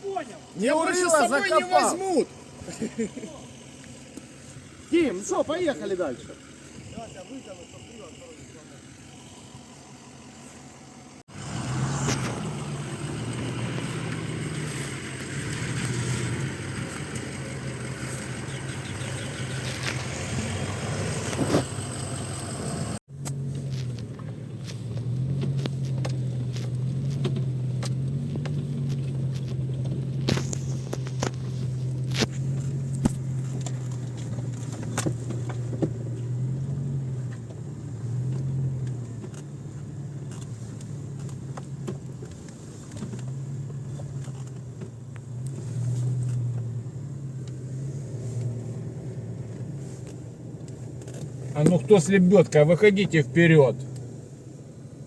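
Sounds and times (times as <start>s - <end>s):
car engine running: 0.0s - 55.0s
knocks and rattles over bumps: 23.9s - 46.8s.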